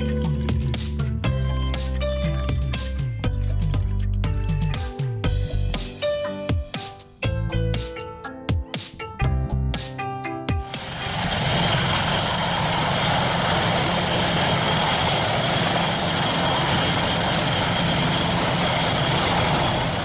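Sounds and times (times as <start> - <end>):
music: 0.0 - 11.3
aircraft engine whooshing: 10.9 - 20.0.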